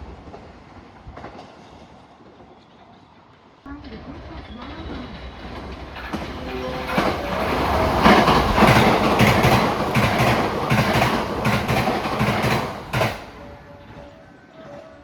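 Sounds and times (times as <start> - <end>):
train wheels clattering: 5.4 - 14.0.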